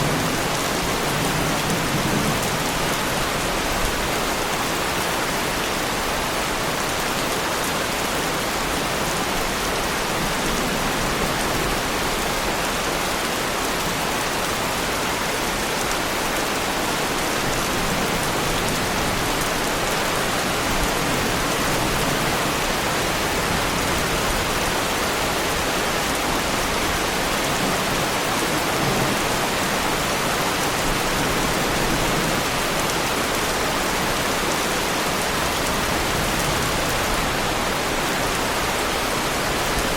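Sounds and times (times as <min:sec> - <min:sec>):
heavy rain on a car: 0:00.0 - 0:39.9.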